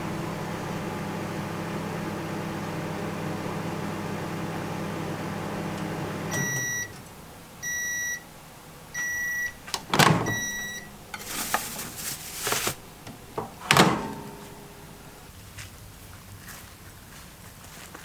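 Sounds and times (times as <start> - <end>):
microwave oven humming: 0.0 - 15.3
high microwave beeps: 6.3 - 8.3, 8.9 - 11.2, 13.2 - 15.2
rustling handling noise: 10.7 - 15.8
sharp clunks: 13.0 - 14.8.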